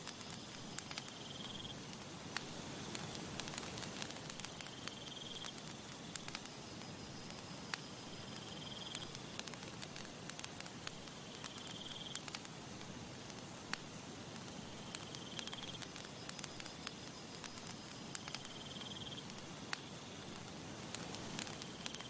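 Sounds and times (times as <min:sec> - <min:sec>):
buzzy insect-like trill: 0:00.0 - 0:10.0, 0:14.6 - 0:20.3
campfire crackling: 0:00.0 - 0:22.0.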